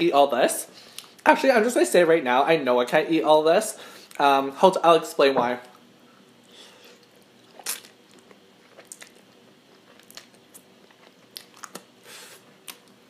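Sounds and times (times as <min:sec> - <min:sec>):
person chewing food: 0:06.6 - 0:13.0.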